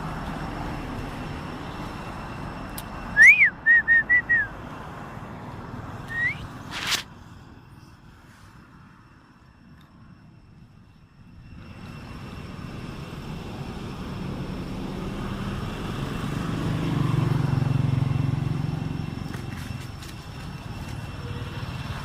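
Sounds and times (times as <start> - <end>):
vehicle engine passing: 11.6 - 22.0.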